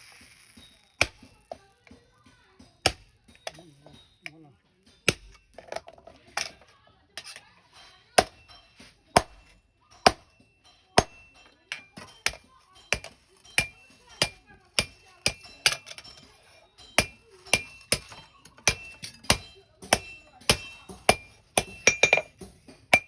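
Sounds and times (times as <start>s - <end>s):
hammer striking metal: 11.0s - 23.0s.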